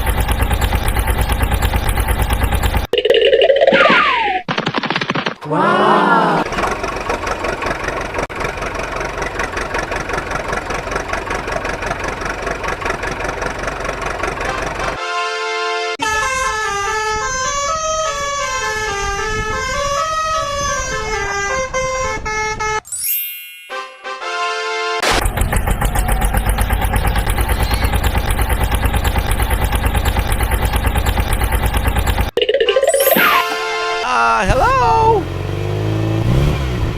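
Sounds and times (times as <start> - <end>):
truck engine idling: 0.0 - 2.9, 6.5 - 15.0, 25.2 - 32.4
truck horn: 14.3 - 22.8, 23.8 - 25.1.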